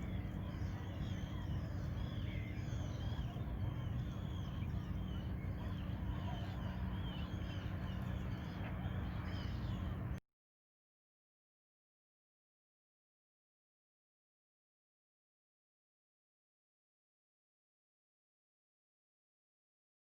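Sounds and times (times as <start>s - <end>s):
small birds chirping: 0.0s - 10.2s
steady low rumble: 0.0s - 10.2s.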